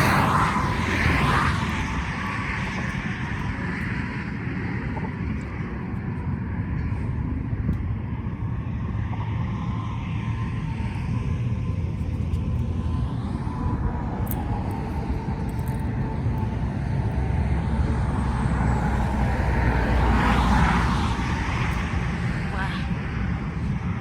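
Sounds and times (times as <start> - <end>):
road traffic rumble: 0.0 - 24.0
vehicle passing loudly: 15.0 - 24.0.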